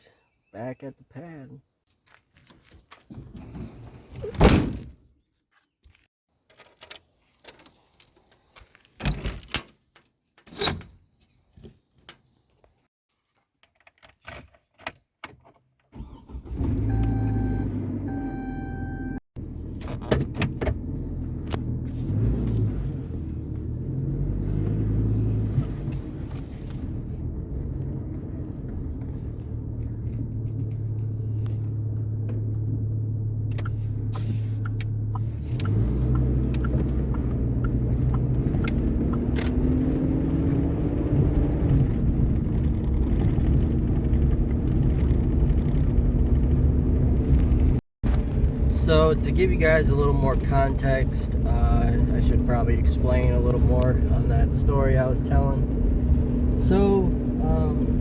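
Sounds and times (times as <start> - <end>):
dashboard warning chime beeps: 16.7 - 19.2
pickup truck engine running: 27.2 - 40.2.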